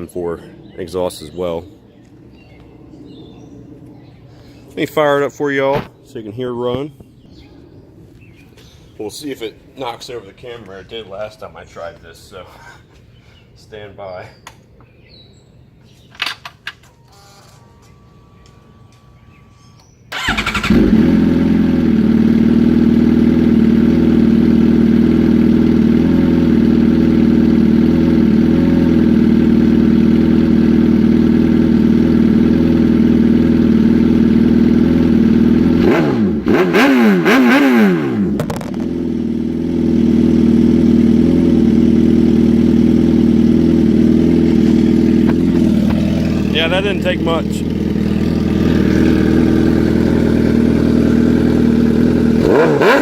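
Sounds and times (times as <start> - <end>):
motorcycle engine idling and revving: 17.8 - 53.0.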